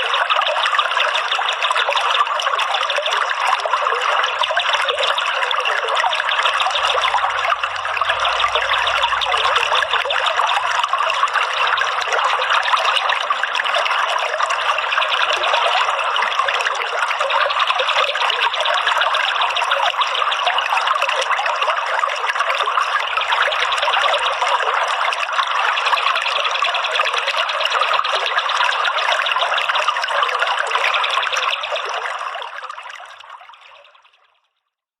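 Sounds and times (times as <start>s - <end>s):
water flowing: 0.0s - 34.1s.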